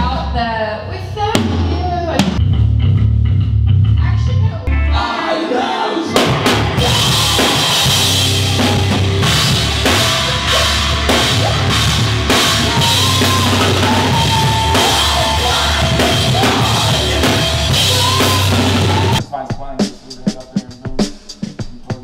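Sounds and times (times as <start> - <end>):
hardcore band playing: 4.6 - 22.0.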